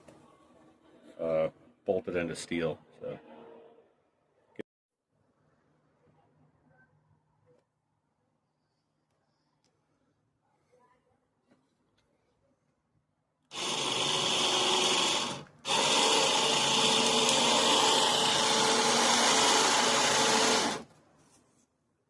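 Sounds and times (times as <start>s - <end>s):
electric power drill running: 13.5s - 20.9s.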